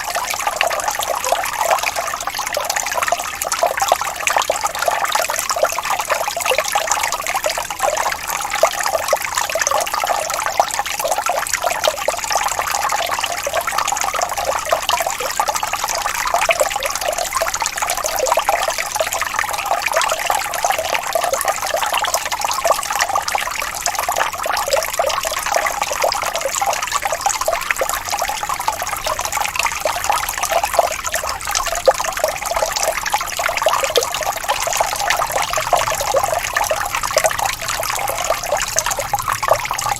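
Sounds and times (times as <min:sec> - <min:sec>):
stream of running water: 0:00.0 - 0:39.9.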